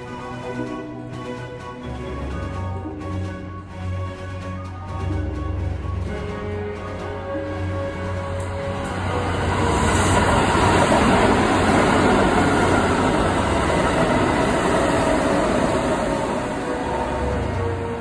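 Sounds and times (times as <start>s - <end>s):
train wheels rumbling on rail: 5.0s - 18.0s.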